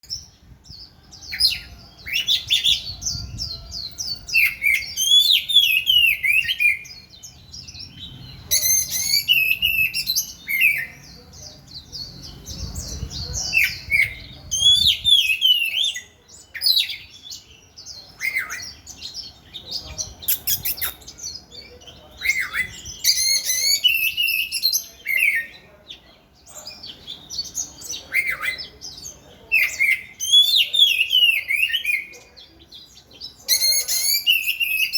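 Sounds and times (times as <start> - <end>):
bird singing whistled phrases: 8.6 - 11.0, 33.6 - 34.9.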